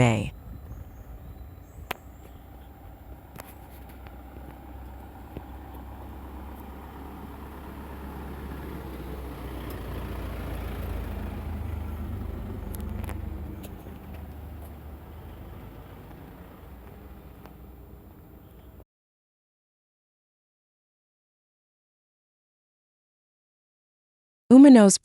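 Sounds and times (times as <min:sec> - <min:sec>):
vehicle passing: 0:00.3 - 0:18.8.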